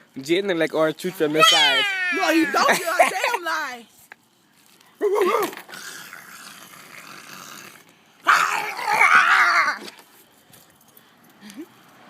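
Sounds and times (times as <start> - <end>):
baby making bark-like growl: 8.3 - 9.8.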